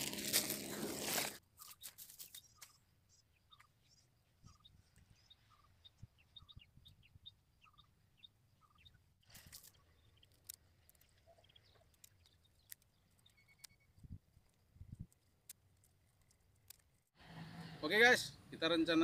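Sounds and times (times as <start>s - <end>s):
faint bird chirps: 1.6s - 14.5s.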